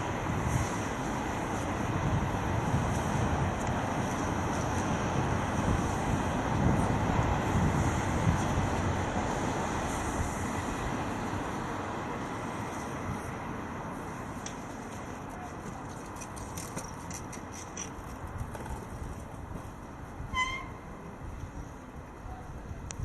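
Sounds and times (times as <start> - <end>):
wind rushing over microphone: 0.0 - 14.3, 18.1 - 23.0
bicycle road noise: 0.0 - 23.0.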